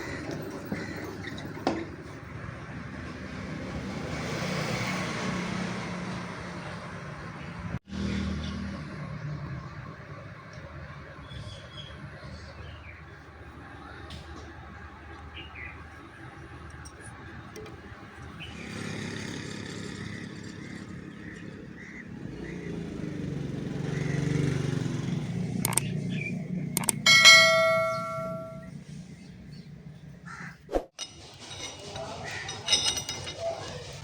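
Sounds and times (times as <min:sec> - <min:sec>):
steel struck and ringing: 0:26.8 - 0:28.7.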